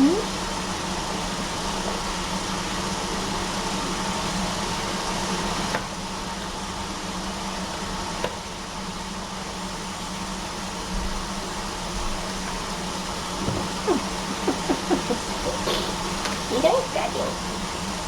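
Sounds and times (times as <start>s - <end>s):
fan-like room noise: 0.0s - 18.0s.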